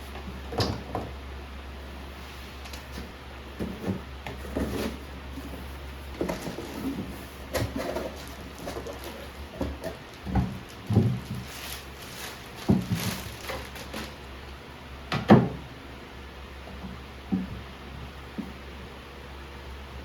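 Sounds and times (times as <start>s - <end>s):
objects thudding and knocking: 2.6s - 5.6s, 6.2s - 14.3s.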